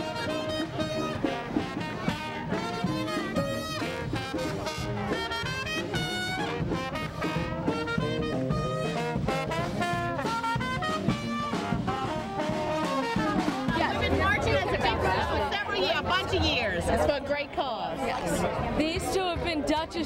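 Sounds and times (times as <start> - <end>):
swing jazz with brass: 0.0 - 17.2.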